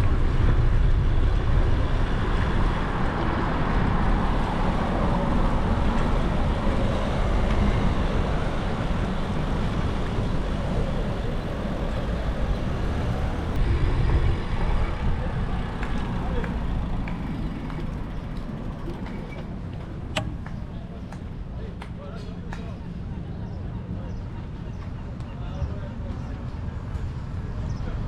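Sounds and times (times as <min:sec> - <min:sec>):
wind rumble on microphone: 0:00.0 - 0:22.7
road traffic: 0:02.0 - 0:13.6, 0:14.3 - 0:23.0
faint gliding engine tone: 0:03.5 - 0:13.6, 0:15.2 - 0:21.2.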